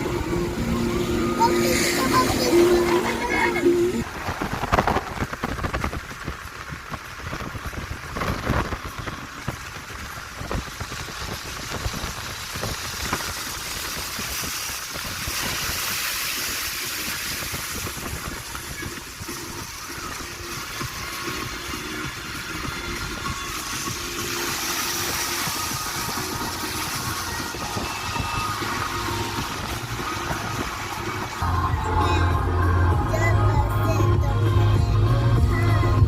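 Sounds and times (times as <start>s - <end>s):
wind and rain hissing: 0.0s - 36.0s
wind buffeting microphone: 3.9s - 31.9s.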